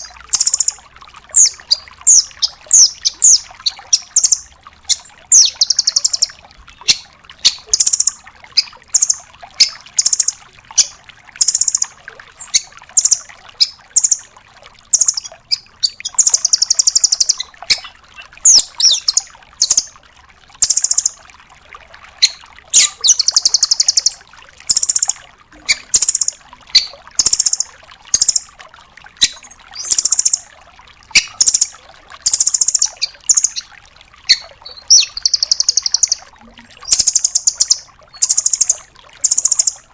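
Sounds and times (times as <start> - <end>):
bird calling high-pitched notes: 0.0 - 14.2, 14.9 - 17.9, 18.5 - 19.9, 20.6 - 21.2, 22.2 - 28.5, 29.2 - 30.4, 32.3 - 33.7, 34.3 - 39.9
bird rattling trills: 34.3 - 36.2, 36.8 - 39.8.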